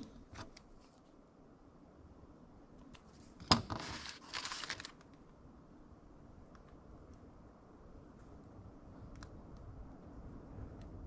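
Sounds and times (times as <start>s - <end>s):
crinkling rustle: 3.0s - 5.2s.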